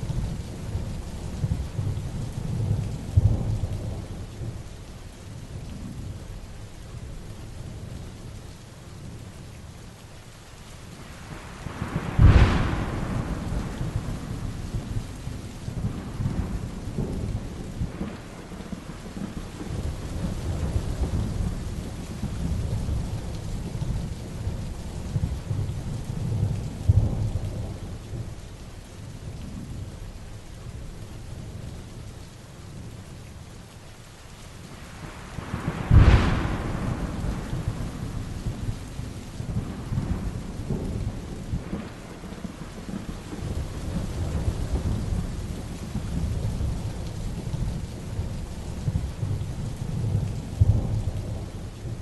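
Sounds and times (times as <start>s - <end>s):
thunder clap and rumble: 0.0s - 4.8s, 11.2s - 28.4s, 34.7s - 52.0s
heavy rain: 0.0s - 52.0s.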